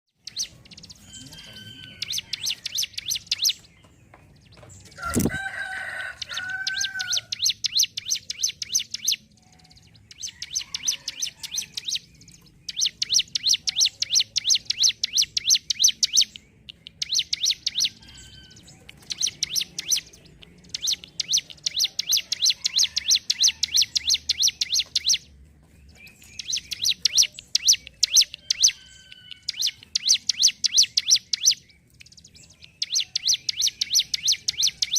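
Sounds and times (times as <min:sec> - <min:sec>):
bird singing rapid sharp notes: 0:00.1 - 0:34.9
thin whistled bird notes: 0:25.9 - 0:34.9.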